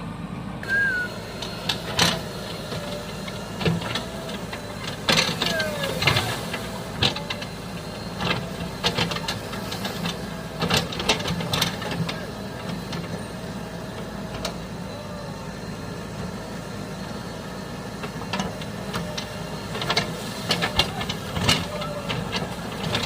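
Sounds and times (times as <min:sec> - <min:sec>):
diesel engine idling: 0:00.0 - 0:23.0
short whistle-like glides: 0:00.6 - 0:01.3.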